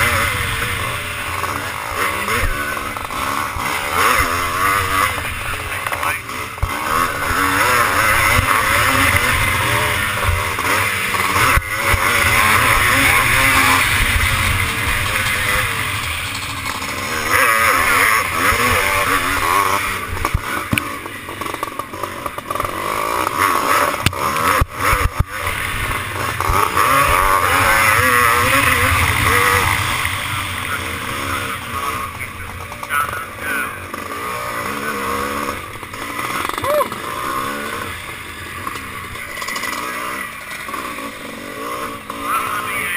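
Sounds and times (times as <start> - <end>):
motocross bike engine revving: 0.0 - 42.9
steady rush of noise: 0.0 - 42.9.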